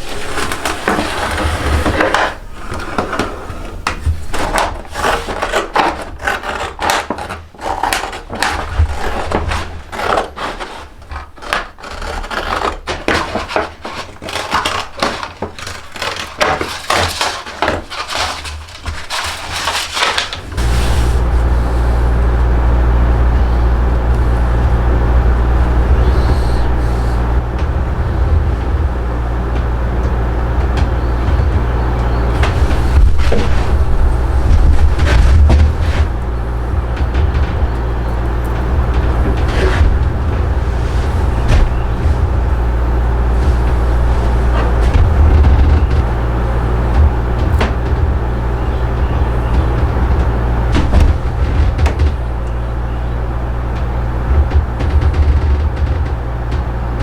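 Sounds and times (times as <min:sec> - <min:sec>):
loud steady low hum: 0:00.0 - 0:04.8, 0:20.2 - 0:57.0
hand tool scraping wood: 0:00.0 - 0:57.0.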